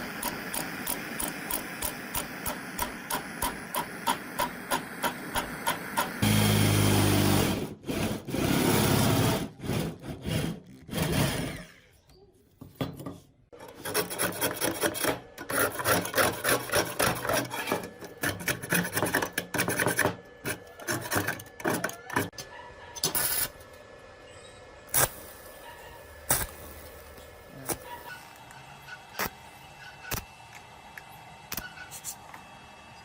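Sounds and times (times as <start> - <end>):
metal filing rasping strokes: 7.7 - 11.7, 13.6 - 22.4.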